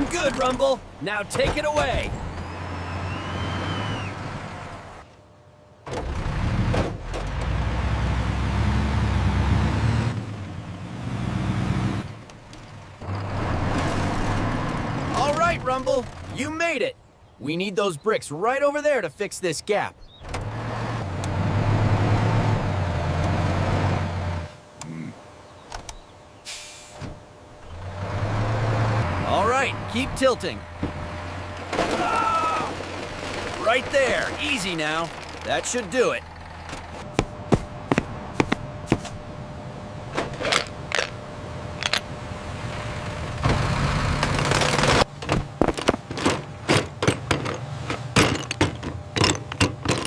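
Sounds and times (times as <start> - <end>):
short hiss: 26.4 - 27.0
truck engine running: 27.2 - 50.0
sharp clicks and knocks: 44.2 - 50.0.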